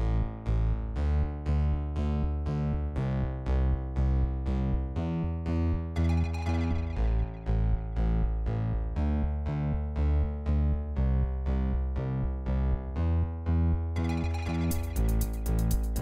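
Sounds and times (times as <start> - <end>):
heavy bass line: 0.0 - 16.0
repeated synthesizer notes: 5.3 - 10.8, 14.0 - 16.0.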